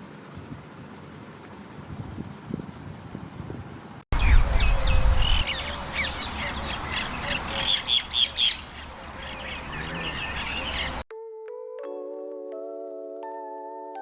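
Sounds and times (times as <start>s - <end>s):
birds chirping and calling: 4.2s - 11.0s.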